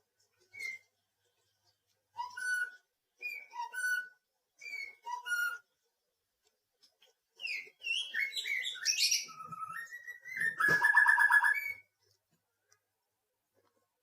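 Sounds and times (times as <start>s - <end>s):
songbird singing: 7.4s - 11.9s.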